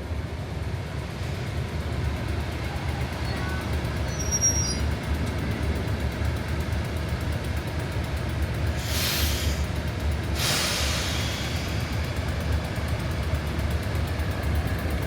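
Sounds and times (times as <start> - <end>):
diesel train rumbling: 0.0 - 15.0
faint high-pitched squeak: 4.1 - 4.8.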